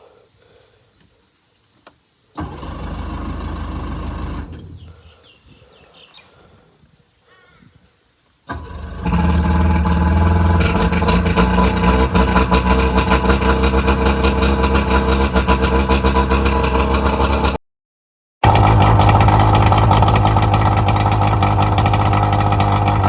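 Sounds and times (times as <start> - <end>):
outboard motor running: 2.4 - 4.8, 8.5 - 17.6, 18.4 - 23.0
outboard motor cranking: 2.4 - 4.9, 8.5 - 17.6, 18.4 - 23.0.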